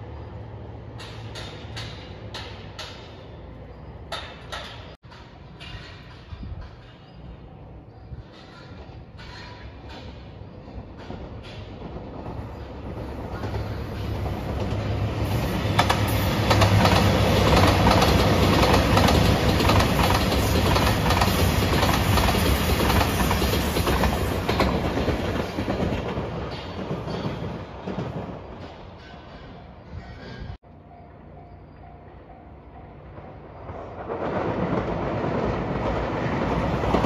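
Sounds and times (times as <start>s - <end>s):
diesel train engines droning: 0.0s - 37.0s
wheels clicking over rail joints: 0.8s - 30.9s.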